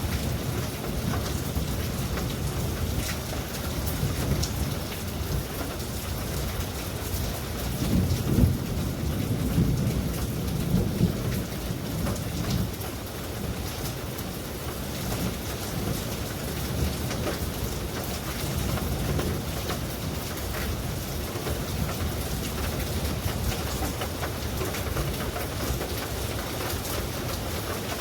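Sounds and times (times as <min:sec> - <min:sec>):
heavy rain falling: 0:00.0 - 0:28.0
rolling thunder: 0:07.8 - 0:12.7.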